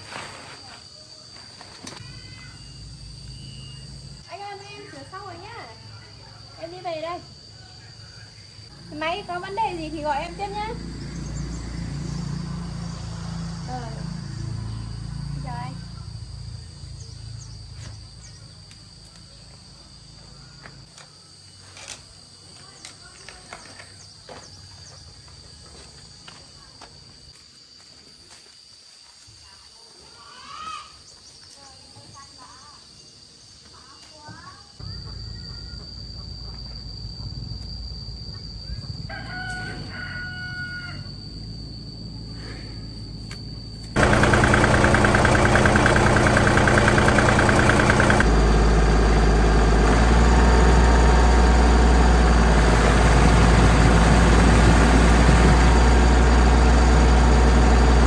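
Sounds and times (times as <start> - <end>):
insects trilling: 0.0 - 58.0
rooster crowing: 38.8 - 41.2
low engine rumble: 41.0 - 58.0.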